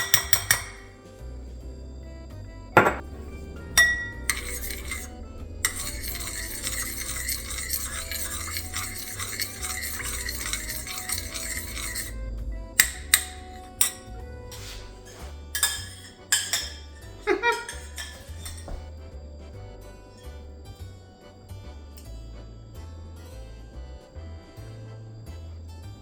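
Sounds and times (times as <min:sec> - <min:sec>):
spoon clinking against bowl: 0:00.0 - 0:01.0, 0:02.8 - 0:12.2, 0:12.8 - 0:18.9
spoon scraping a bowl: 0:00.0 - 0:01.1, 0:02.8 - 0:18.9.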